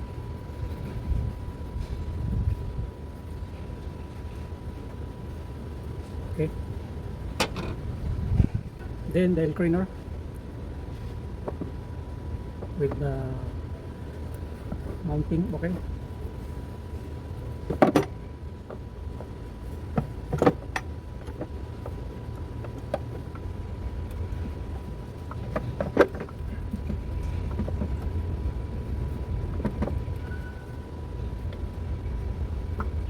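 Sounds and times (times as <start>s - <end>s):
steady low rumble: 0.0s - 33.0s
tools knocking and clicking: 7.4s - 7.8s.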